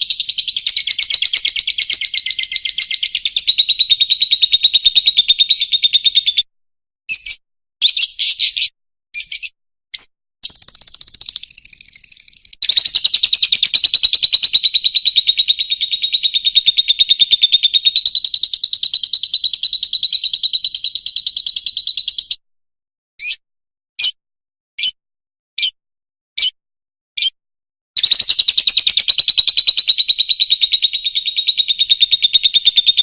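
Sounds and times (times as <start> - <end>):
bird chattering trills: 0.0 - 6.4, 7.1 - 9.5, 10.4 - 22.4, 28.0 - 33.0.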